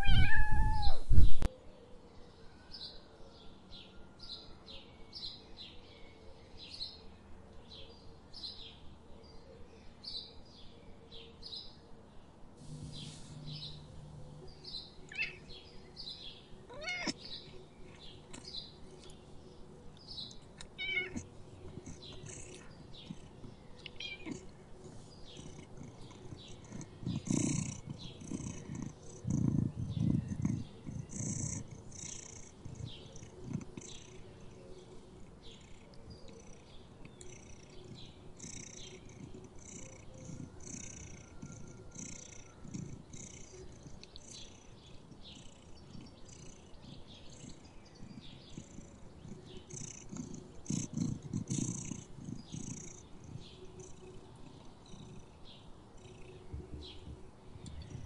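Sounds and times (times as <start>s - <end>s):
cat purring: 12.6s - 58.0s.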